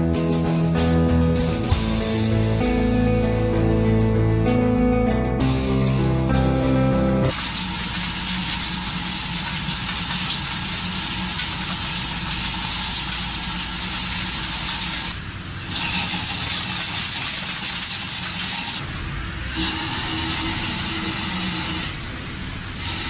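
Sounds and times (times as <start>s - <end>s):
machine running with steady hiss: 7.3s - 23.0s.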